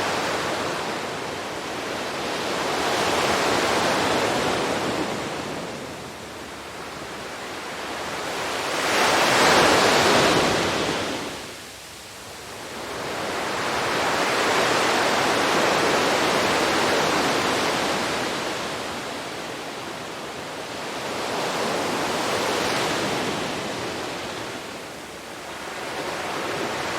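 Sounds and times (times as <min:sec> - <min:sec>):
sea waves breaking on beach: 0:06.8 - 0:11.6, 0:12.7 - 0:26.9.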